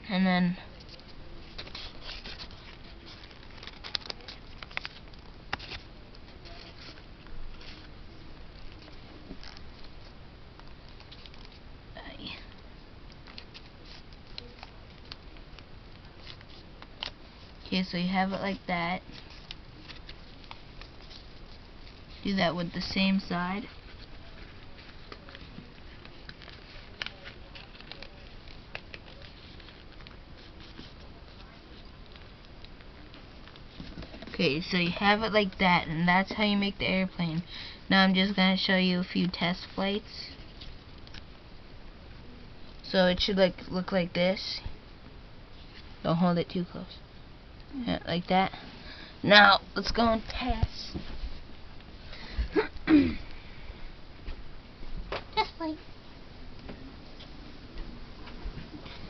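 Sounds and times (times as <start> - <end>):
paper crinkling and rustling: 0.7 - 11.7, 12.5 - 17.6, 18.2 - 22.3, 23.6 - 35.6.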